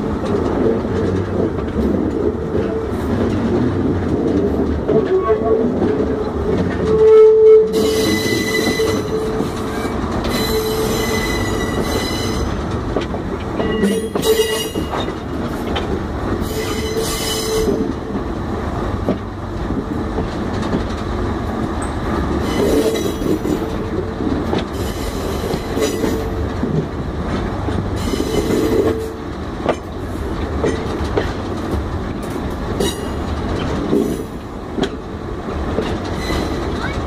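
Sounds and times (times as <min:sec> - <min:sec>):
locomotive rumble: 0:00.0 - 0:37.0
wheels clicking over rail joints: 0:00.0 - 0:37.0
wheel squeal: 0:07.0 - 0:12.5, 0:36.2 - 0:36.6.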